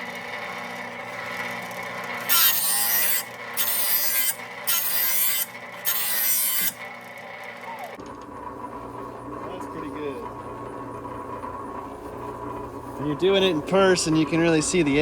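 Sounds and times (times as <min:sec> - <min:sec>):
file sharpening metal blade: 0:02.3 - 0:06.8.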